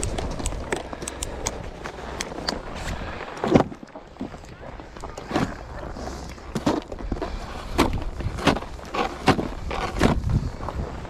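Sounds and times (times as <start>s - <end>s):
crunching and scraping on snow: 0.0s - 11.0s.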